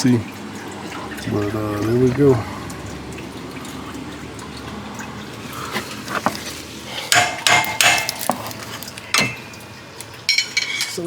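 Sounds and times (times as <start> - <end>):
coolant trickling: 0.0 - 11.0
metal wrenches clinking: 10.3 - 11.0.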